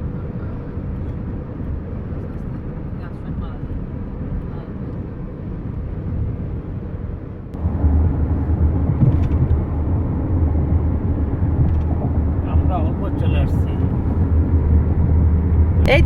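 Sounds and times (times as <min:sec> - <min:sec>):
car road noise inside cabin: 0:07.6 - 0:16.0.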